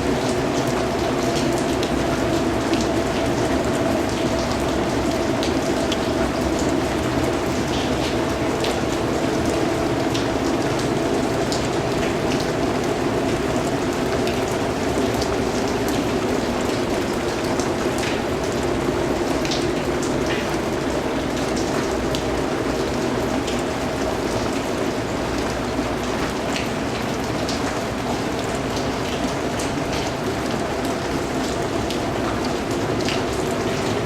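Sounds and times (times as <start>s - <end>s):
raindrops pattering: 0.0s - 34.0s
steady rainfall: 0.0s - 34.0s.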